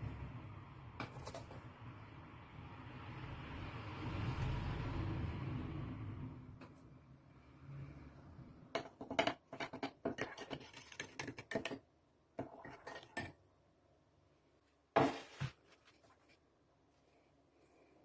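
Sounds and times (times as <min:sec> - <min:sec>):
kitchenware clatter: 0:08.8 - 0:11.8
kitchenware clicking and tapping: 0:08.8 - 0:11.8, 0:12.4 - 0:13.4.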